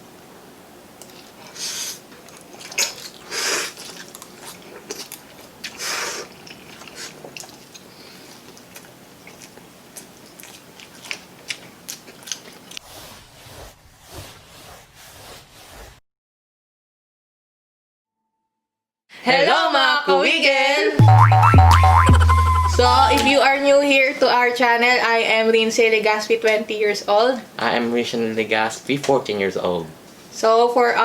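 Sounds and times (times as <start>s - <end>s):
chewing with wet mouth sounds: 2.1s - 12.8s.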